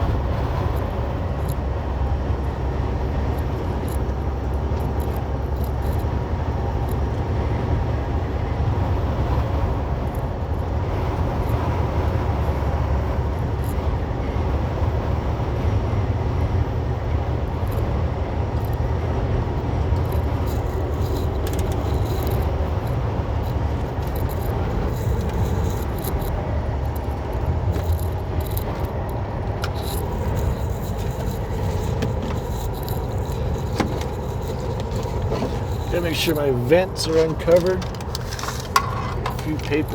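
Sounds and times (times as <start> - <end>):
truck engine and road noise: 0.0 - 39.9
light clicks and rattles: 19.9 - 39.9.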